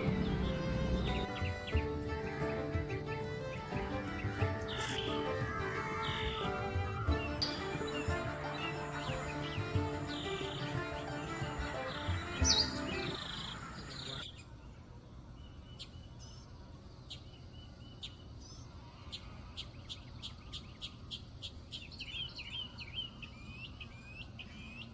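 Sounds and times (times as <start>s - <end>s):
background music: 0.0s - 14.2s
small birds chirping: 0.0s - 14.8s.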